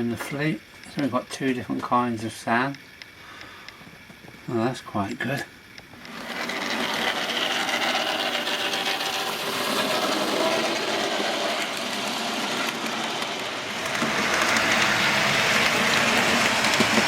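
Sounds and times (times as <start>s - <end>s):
model train whirring rattle: 5.1s - 17.0s.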